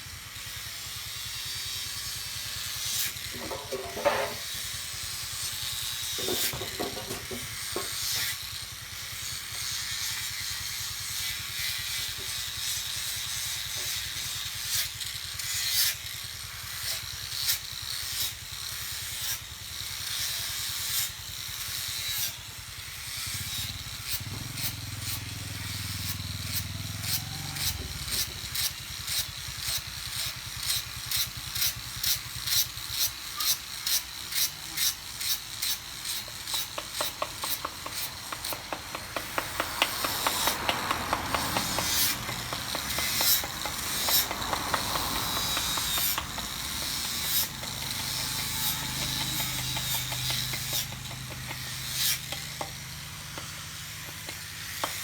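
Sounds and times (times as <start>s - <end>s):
hand tool scraping wood: 2.8s - 5.0s, 6.0s - 8.4s, 20.2s - 55.0s.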